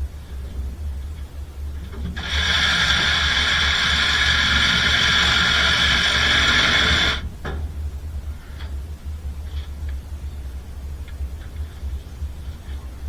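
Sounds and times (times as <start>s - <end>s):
power tool motor whining: 2.0s - 7.3s.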